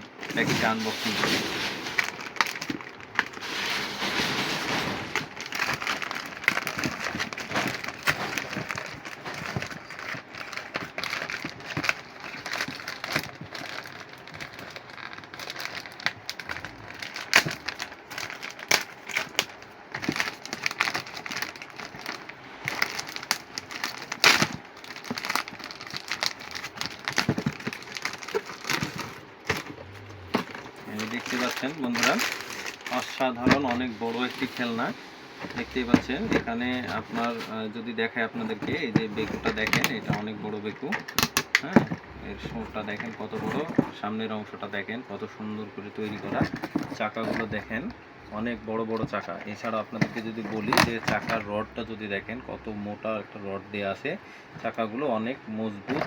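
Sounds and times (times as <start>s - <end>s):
packaging clicks and knocks: 0.3s - 37.6s, 38.4s - 44.0s, 46.1s - 47.6s, 48.9s - 51.5s
plastic wrap crinkling: 0.3s - 43.9s.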